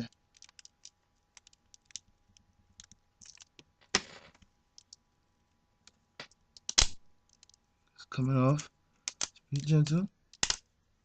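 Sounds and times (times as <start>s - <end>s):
plastic and tape crackling: 0.0s - 5.0s, 5.8s - 7.7s, 8.6s - 10.7s.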